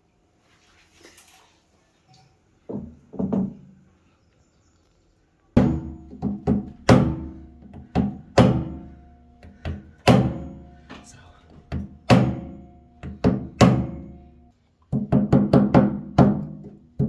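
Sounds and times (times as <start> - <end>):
heavy ringing knocks: 5.6 - 11.0, 11.7 - 14.4.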